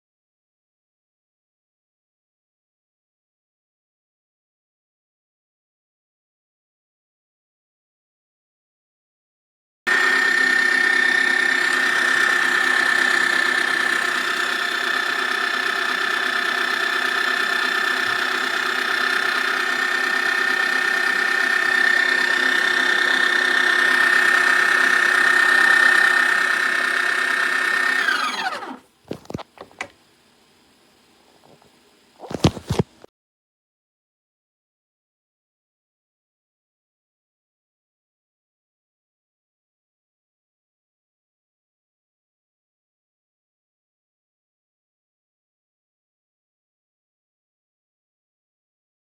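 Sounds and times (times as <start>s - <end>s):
coffee grinder whining: 9.9s - 30.0s, 31.3s - 32.9s.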